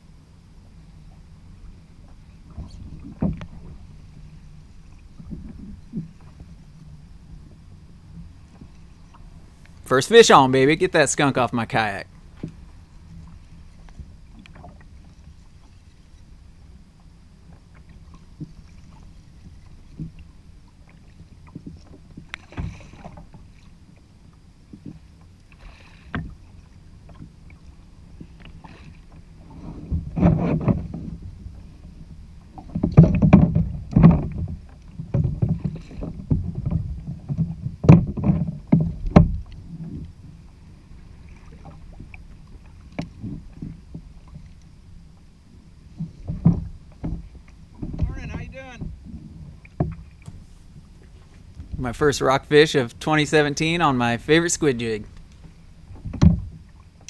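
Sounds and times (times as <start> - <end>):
low wind and water rumble: 0.0 - 57.0
knocks on kayak hull: 35.0 - 39.5, 56.0 - 56.5.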